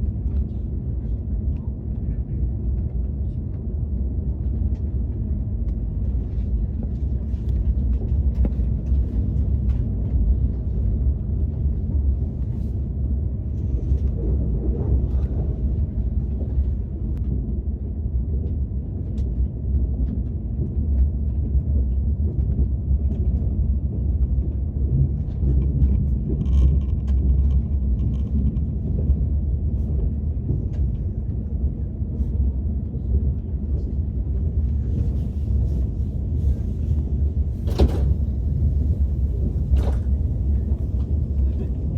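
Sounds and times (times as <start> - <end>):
high-speed train rumble inside cabin: 0.0 - 41.9.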